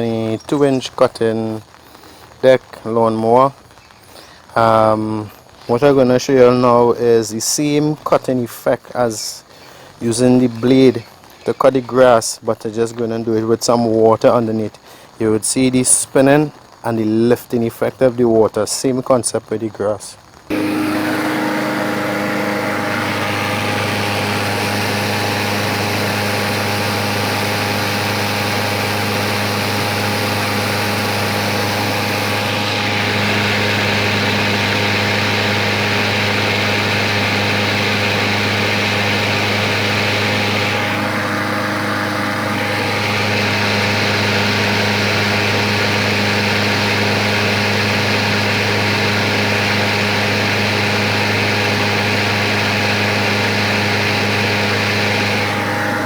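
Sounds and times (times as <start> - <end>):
lawnmower running: 0.0 - 6.9, 20.5 - 56.0.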